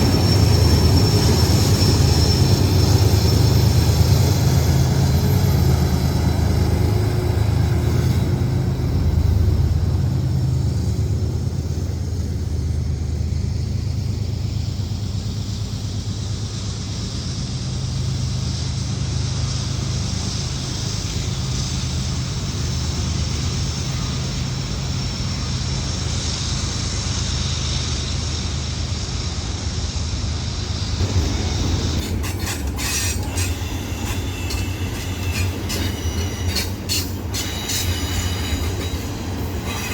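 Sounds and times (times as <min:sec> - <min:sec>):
diesel locomotive drone: 0:00.0 - 0:39.9
rolling train cars: 0:00.0 - 0:39.9
wheels clicking on rails: 0:30.8 - 0:39.9.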